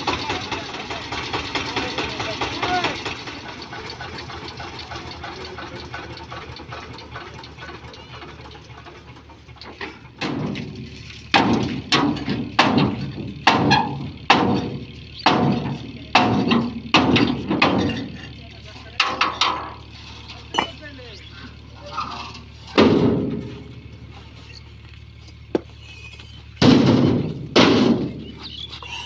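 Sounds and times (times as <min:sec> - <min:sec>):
steady engine running: 0:00.0 - 0:29.0
bricks knocking together: 0:20.5 - 0:20.8.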